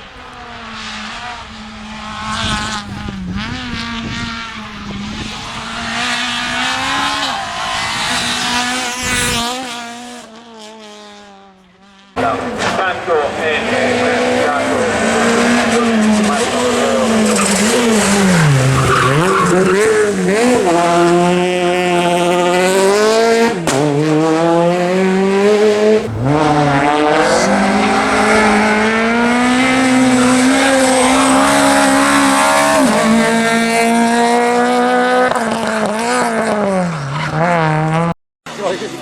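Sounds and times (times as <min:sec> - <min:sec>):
rally car engine revving: 0:00.0 - 0:39.0
tyre squeal: 0:14.8 - 0:20.8.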